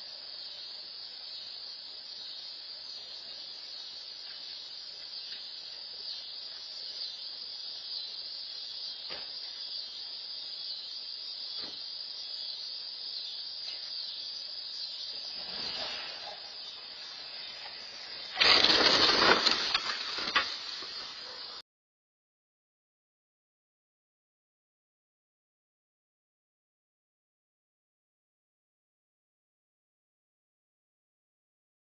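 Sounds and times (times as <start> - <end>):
high-pitched hiss: 0.0 - 21.6
loud crash with sharp knocks: 18.3 - 21.0.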